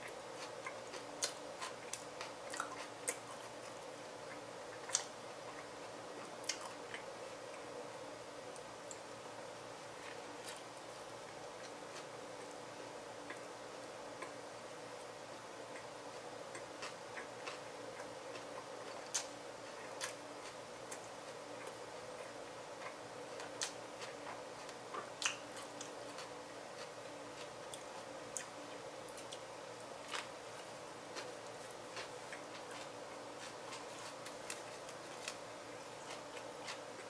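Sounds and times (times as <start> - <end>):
steady background hum: 0.0 - 37.0
person chewing: 0.4 - 7.0, 15.7 - 29.4, 30.0 - 37.0.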